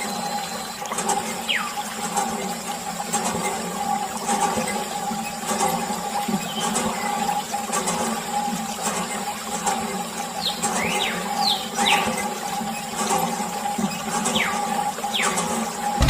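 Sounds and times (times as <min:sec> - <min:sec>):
electric water pump humming: 0:00.0 - 0:16.0.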